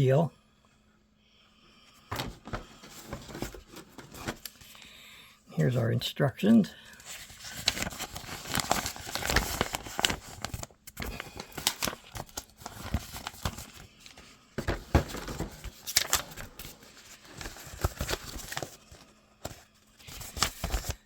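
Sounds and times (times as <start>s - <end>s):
paper rustling and crinkling: 2.1s - 4.8s, 6.9s - 21.0s.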